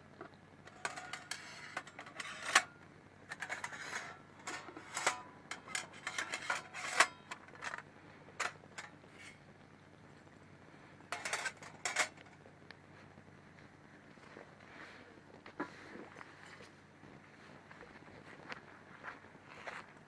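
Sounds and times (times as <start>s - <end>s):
metal camping gear clinking: 0.7s - 2.7s, 3.3s - 9.4s, 11.1s - 12.4s.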